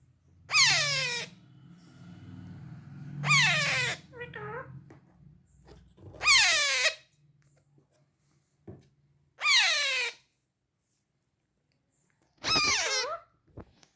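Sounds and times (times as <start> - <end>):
parrot chick calling: 0.5 - 1.4, 3.2 - 4.7, 6.2 - 7.1, 9.4 - 10.2, 12.4 - 13.2.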